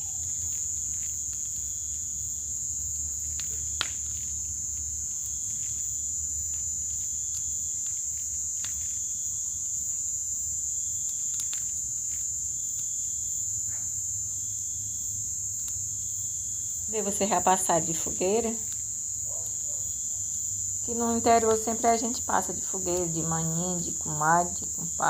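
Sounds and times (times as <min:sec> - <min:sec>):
bonfire snaps and crackles: 0:00.0 - 0:25.0
high-pitched insect chorus: 0:00.0 - 0:25.0.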